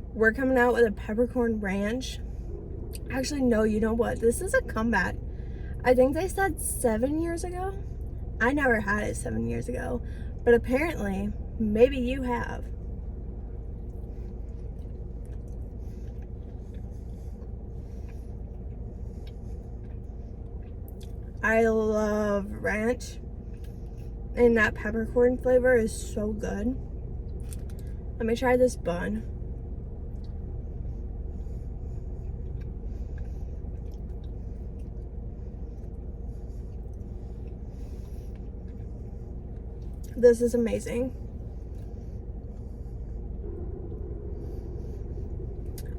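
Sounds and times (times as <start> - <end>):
low rumble and hum: 0.0 - 45.9
person chewing: 14.0 - 21.2.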